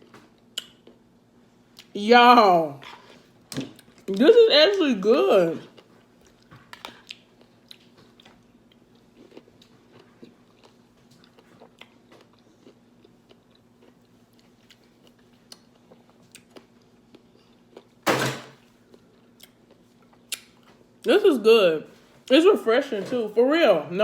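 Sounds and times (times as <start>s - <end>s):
person chewing: 0.4s - 1.0s, 5.7s - 18.0s, 18.8s - 20.7s.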